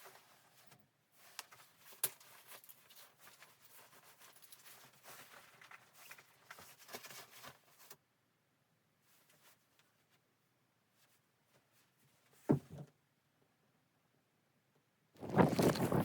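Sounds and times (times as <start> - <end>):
small rustles and clicks: 0.0 - 8.0, 15.2 - 16.0.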